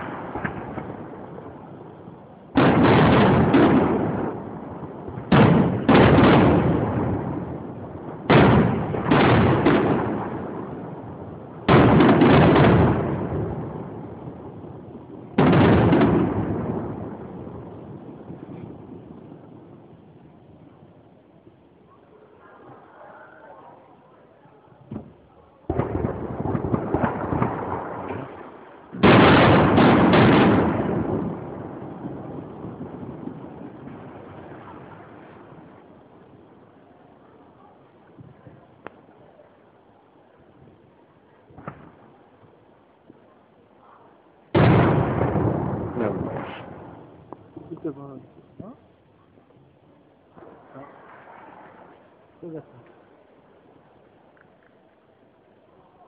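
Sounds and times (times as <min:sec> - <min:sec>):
firework shells bursting: 0:00.0 - 0:14.6, 0:24.8 - 0:36.6
firework crackles: 0:00.0 - 0:56.0.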